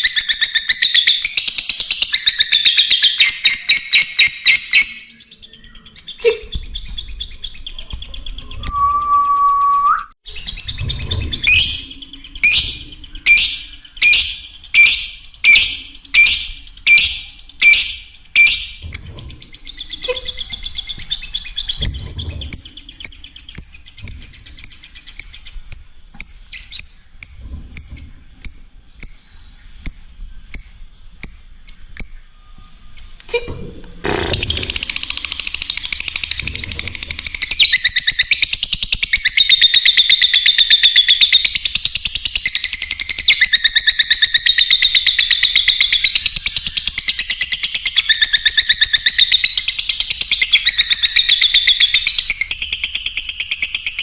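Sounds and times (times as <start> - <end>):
lovebirds chirping: 0.0 - 33.4
rising whistle-like tone: 8.6 - 10.2.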